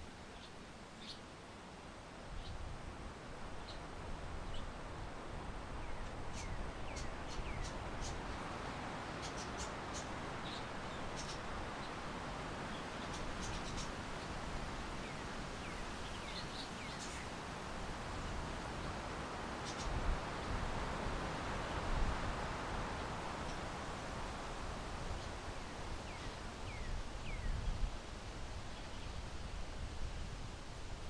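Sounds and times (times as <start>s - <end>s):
steady wind: 0.0s - 31.0s
small birds chirping: 0.3s - 1.2s, 5.8s - 12.0s, 12.7s - 14.3s, 19.6s - 20.0s.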